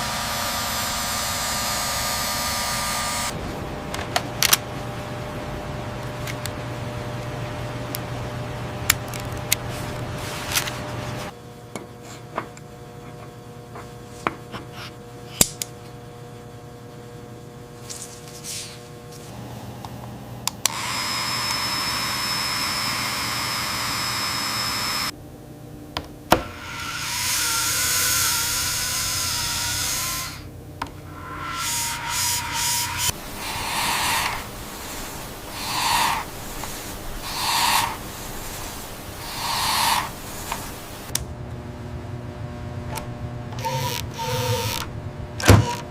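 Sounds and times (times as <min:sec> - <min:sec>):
machine hum: 0:00.0 - 0:11.8, 0:12.5 - 0:45.9
whining hiss: 0:19.3 - 0:25.1, 0:26.6 - 0:30.5, 0:31.1 - 0:41.1
loud steady hiss: 0:31.6 - 0:41.1.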